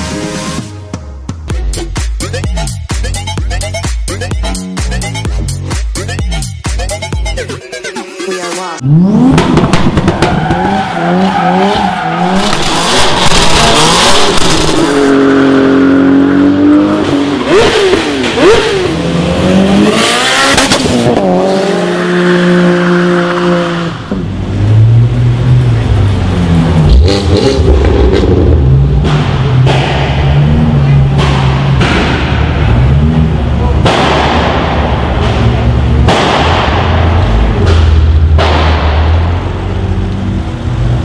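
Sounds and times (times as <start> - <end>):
car engines revving hard: 8.8 - 41.0.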